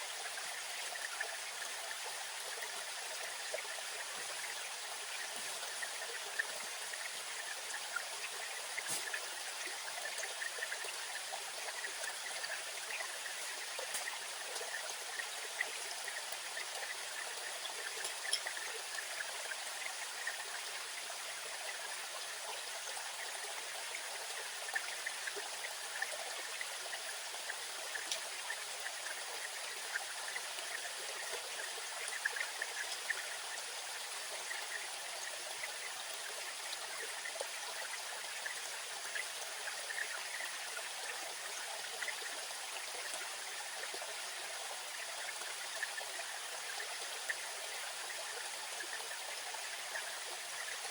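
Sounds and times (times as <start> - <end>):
faint ticks: 24.3 - 33.6.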